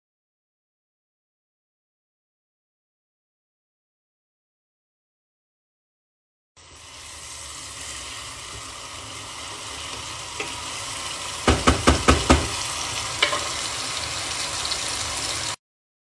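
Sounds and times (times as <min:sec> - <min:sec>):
vegetables sizzling in a pan: 0:06.6 - 0:15.6
spatula knocking against pan: 0:11.4 - 0:12.6.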